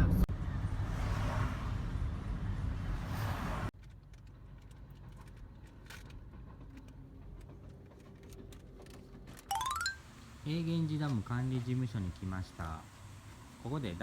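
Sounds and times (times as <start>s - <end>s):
car road noise and engine rumble: 0.0s - 9.4s.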